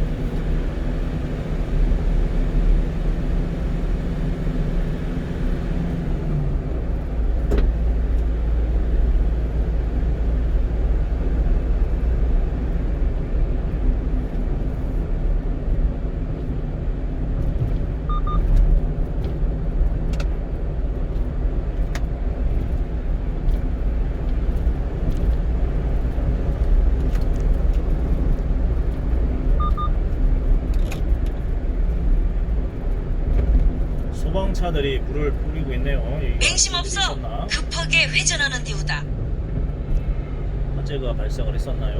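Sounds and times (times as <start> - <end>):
truck engine and road rumble: 0.0 - 41.9
faint double beep: 18.1 - 18.4, 29.6 - 30.0.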